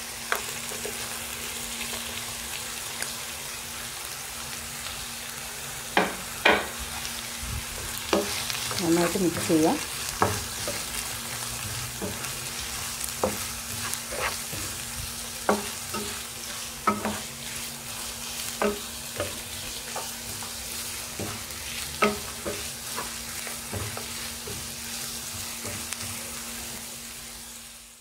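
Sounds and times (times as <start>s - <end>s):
food sizzling in a frying pan: 0.0s - 28.0s
wooden spatula scraping a pan: 7.8s - 26.3s.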